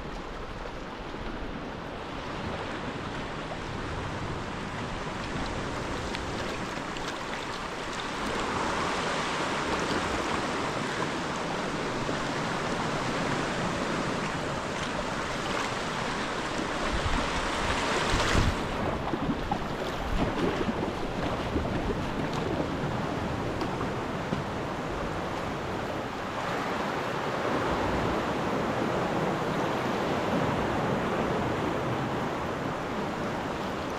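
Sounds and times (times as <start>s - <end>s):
sea waves splashing around kayak: 0.0s - 33.9s
wind buffeting microphone: 8.1s - 26.4s.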